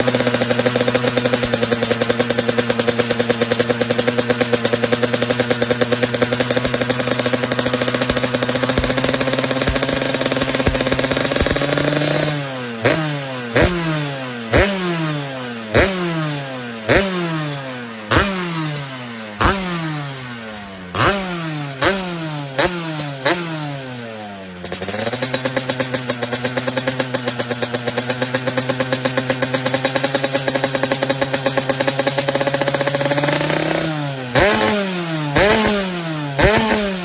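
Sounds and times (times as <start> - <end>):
two-stroke motorcycle engine revving: 0.0 - 37.0.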